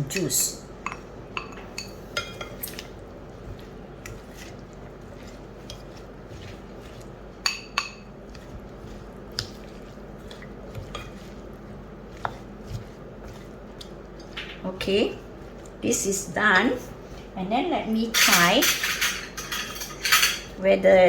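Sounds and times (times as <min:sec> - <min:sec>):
utensil clinking against bowl: 0:03.5 - 0:11.4, 0:18.1 - 0:20.6.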